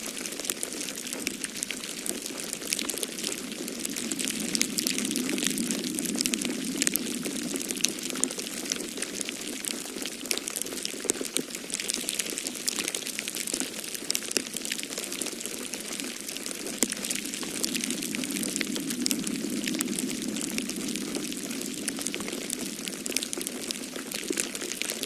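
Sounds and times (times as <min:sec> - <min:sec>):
wood fire crackling: 0:00.0 - 0:25.0
snowstorm wind rushing: 0:01.3 - 0:09.6, 0:15.9 - 0:25.0.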